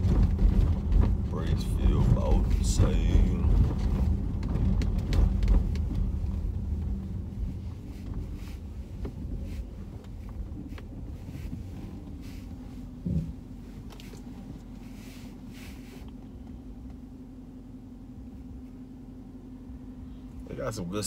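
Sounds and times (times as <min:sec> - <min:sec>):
car engine and road noise: 0:00.0 - 0:21.0
short thump: 0:13.0 - 0:13.4.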